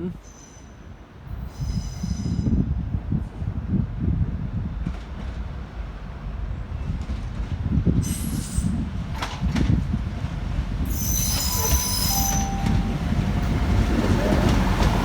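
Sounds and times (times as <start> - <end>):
train rumbling: 0.0 - 15.0
wheel squeal: 10.9 - 12.9.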